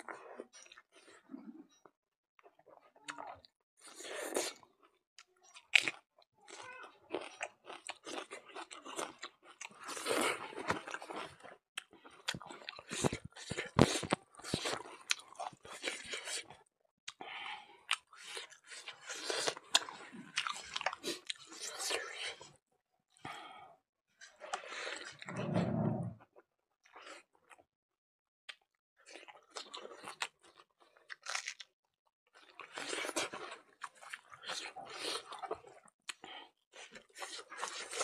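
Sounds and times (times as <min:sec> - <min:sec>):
man chewing food: 0:07.1 - 0:22.5, 0:28.5 - 0:31.7, 0:32.4 - 0:38.0.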